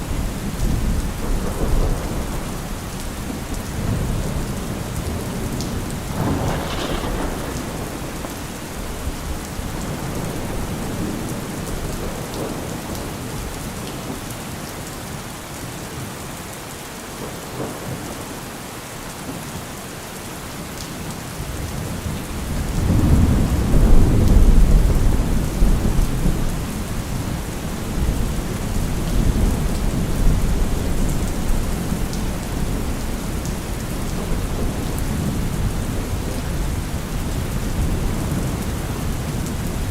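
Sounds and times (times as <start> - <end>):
deep rolling thunder: 0.0 - 13.2, 22.0 - 39.9
steady rain: 0.0 - 39.9
thunderclap: 5.1 - 12.7.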